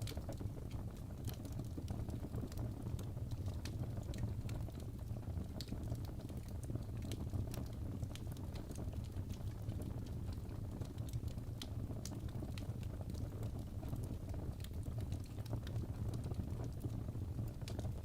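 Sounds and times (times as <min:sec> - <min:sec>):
logs crackling in a fireplace: 0:00.0 - 0:18.0
low fire rumble: 0:00.0 - 0:18.0.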